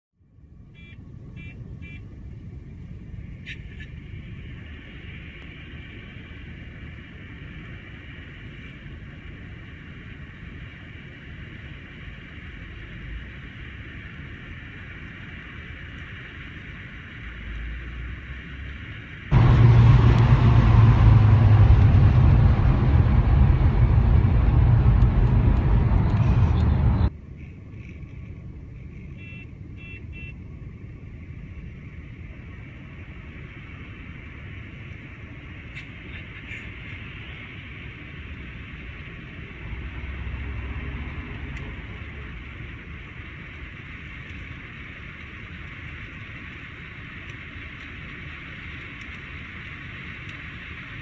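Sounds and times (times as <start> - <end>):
faint road and engine noise: 0.2 - 51.0
car engine and road noise: 1.4 - 27.9, 28.8 - 51.0.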